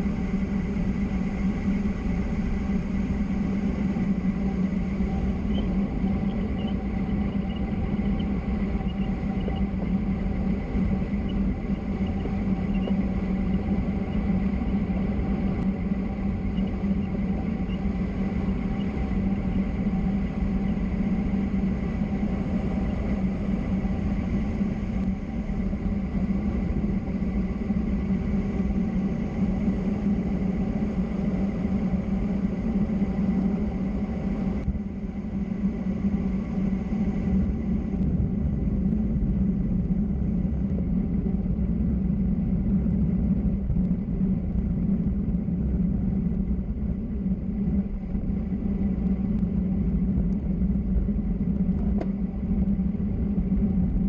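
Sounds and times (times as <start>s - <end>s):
wind noise: 0.0s - 54.0s.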